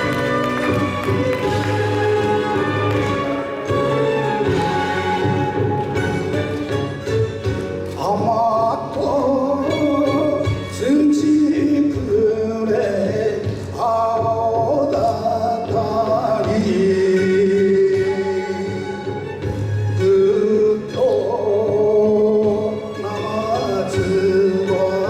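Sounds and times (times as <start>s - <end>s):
instrumental accompaniment: 0.0s - 25.0s
man singing: 7.9s - 19.3s, 20.0s - 25.0s.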